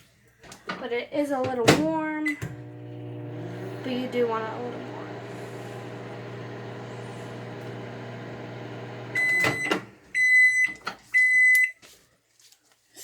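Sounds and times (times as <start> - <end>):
microwave oven humming: 2.4 - 10.1
high microwave beeps: 9.0 - 11.8.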